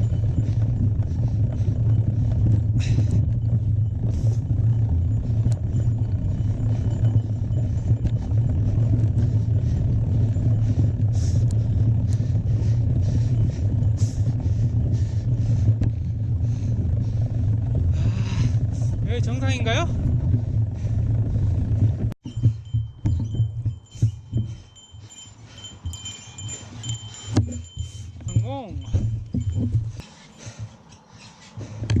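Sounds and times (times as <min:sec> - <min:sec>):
wind rumble on microphone: 0:00.0 - 0:30.0.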